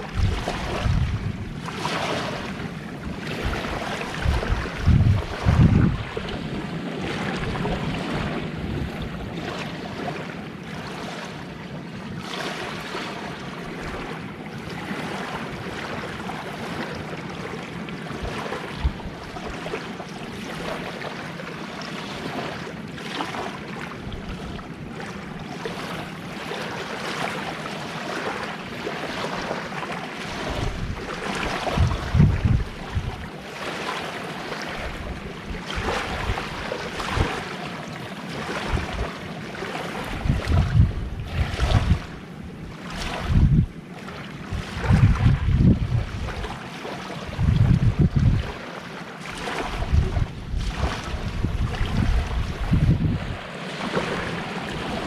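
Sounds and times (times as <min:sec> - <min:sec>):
wind buffeting microphone: 0:00.0 - 0:10.4, 0:18.1 - 0:19.8, 0:30.3 - 0:33.4, 0:34.7 - 0:37.5, 0:38.5 - 0:39.2, 0:39.9 - 0:43.8, 0:44.4 - 0:46.6, 0:47.3 - 0:48.6, 0:49.4 - 0:55.0
sea waves washing on shore: 0:00.0 - 0:55.0.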